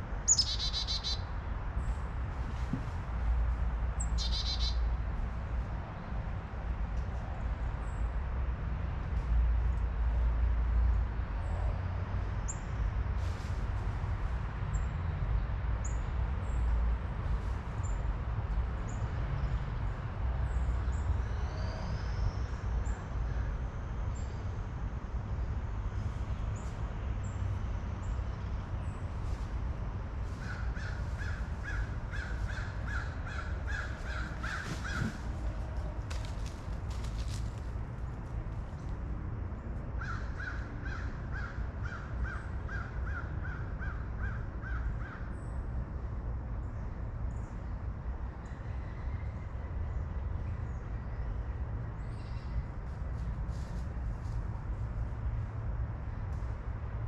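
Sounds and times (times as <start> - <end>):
birds chirping: 0.3 - 1.2.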